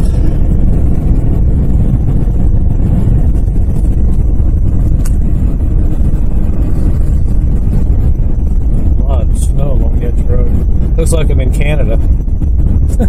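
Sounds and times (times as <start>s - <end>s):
car tyre and road noise: 0.0s - 13.0s.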